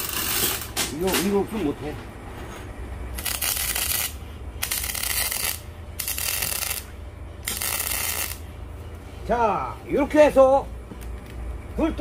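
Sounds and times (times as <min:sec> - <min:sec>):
arc welding crackling hiss: 0:03.2 - 0:08.5.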